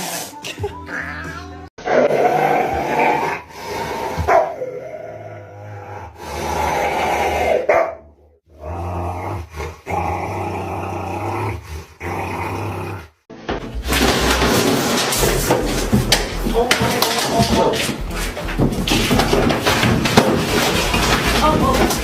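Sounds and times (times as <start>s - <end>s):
dog growling and barking: 1.8s - 13.2s.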